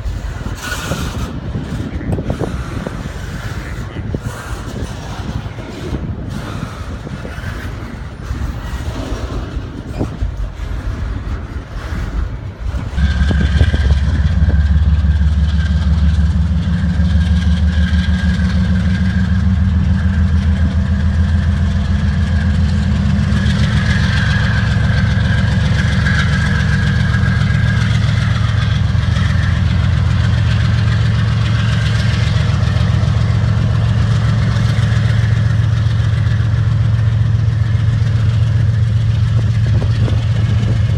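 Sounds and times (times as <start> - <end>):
diesel locomotive engine running: 0.0 - 40.9.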